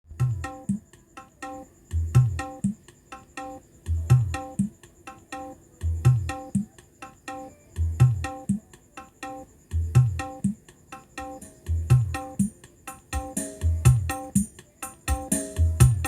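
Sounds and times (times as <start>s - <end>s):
music over loudspeakers: 0.1s - 16.0s
heavy bass beat: 15.6s - 16.0s.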